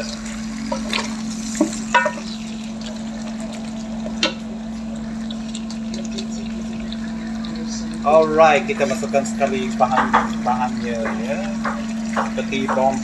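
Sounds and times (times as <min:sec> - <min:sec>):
food sizzling in a pot: 0:00.0 - 0:13.0
low hum: 0:00.0 - 0:13.0
wooden spatula knocking on pot: 0:01.6 - 0:02.3, 0:09.7 - 0:13.0.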